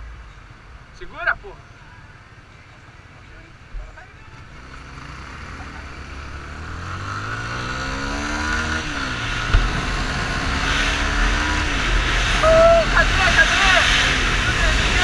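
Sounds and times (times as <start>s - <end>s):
motorcycle engine accelerating: 3.8s - 15.0s.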